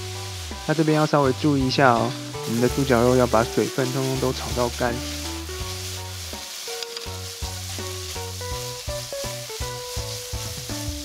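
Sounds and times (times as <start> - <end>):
meat sizzling in a frying pan: 0.0 - 11.0
music with held notes: 0.0 - 11.0
spatula stirring in a pan: 2.2 - 11.0.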